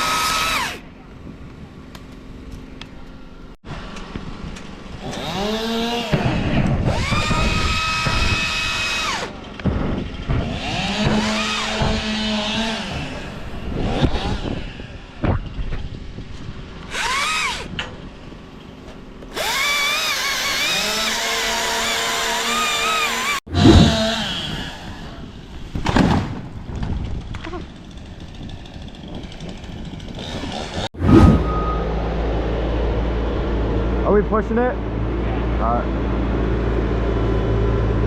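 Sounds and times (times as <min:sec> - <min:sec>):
chainsaw engine revving: 0:00.0 - 0:00.8, 0:04.9 - 0:09.4, 0:10.3 - 0:15.0, 0:19.3 - 0:25.3, 0:27.8 - 0:31.2.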